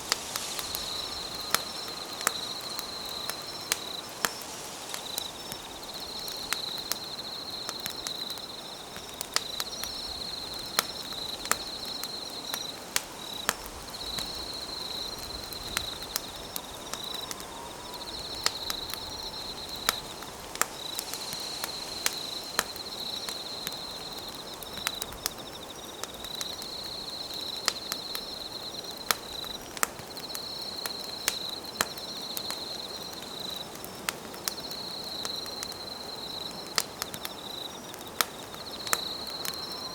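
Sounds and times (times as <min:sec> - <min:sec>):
insect trilling: 0:00.0 - 0:25.8
campfire crackling and popping: 0:00.0 - 0:39.9.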